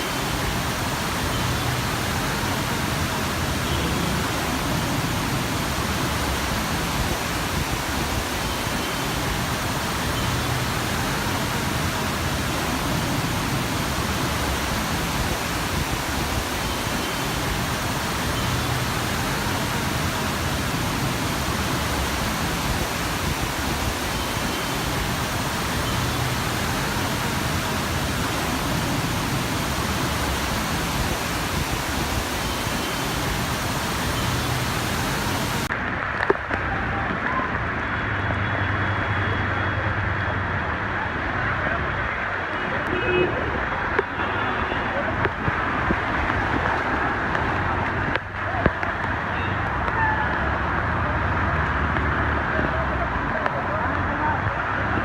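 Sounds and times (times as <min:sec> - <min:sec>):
heavy rain rushing: 0:00.0 - 0:55.0.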